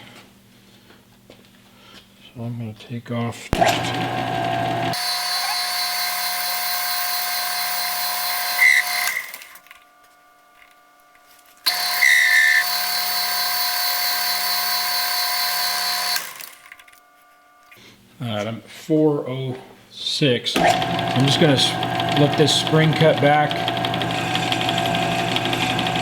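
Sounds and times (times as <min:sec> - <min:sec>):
metal lathe turning: 0:03.6 - 0:09.5, 0:11.7 - 0:16.6, 0:20.6 - 0:26.0.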